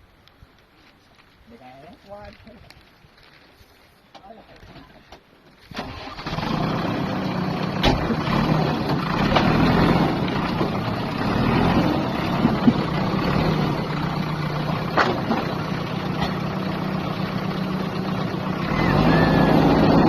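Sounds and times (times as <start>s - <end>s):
diesel engine running: 5.8s - 20.0s.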